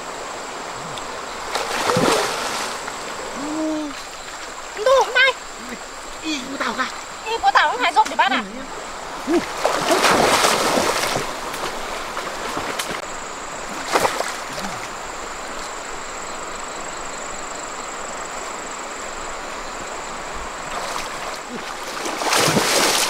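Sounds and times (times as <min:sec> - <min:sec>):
running water rushing: 0:00.0 - 0:23.0
splash or knock: 0:01.5 - 0:02.9, 0:09.3 - 0:13.0, 0:13.8 - 0:14.9, 0:21.8 - 0:23.0.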